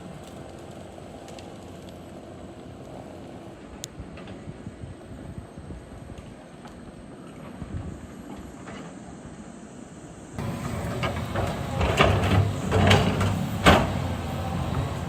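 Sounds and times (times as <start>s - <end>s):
diesel engine running: 10.4s - 15.0s
metallic clanks and scraping: 10.4s - 15.0s.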